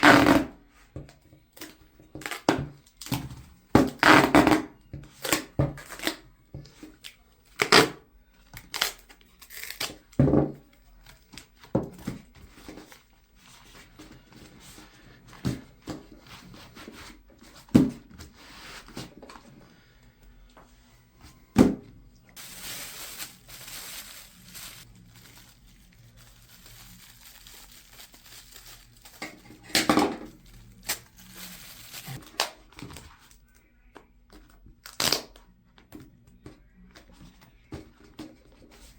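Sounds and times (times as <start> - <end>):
duct tape ripping and crinkling: 0.0 - 0.5, 3.8 - 6.2, 8.6 - 10.0, 22.4 - 32.6, 34.8 - 35.4.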